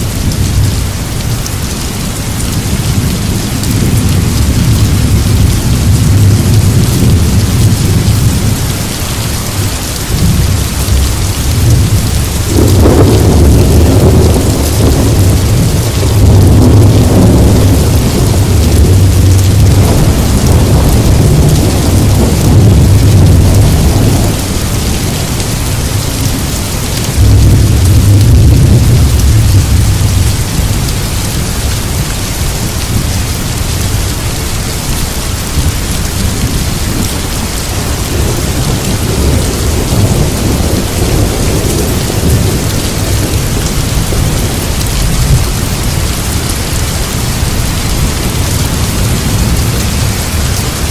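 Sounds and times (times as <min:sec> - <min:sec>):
heavy rain: 0:00.0 - 0:50.9
thunder rumbling: 0:00.0 - 0:50.9.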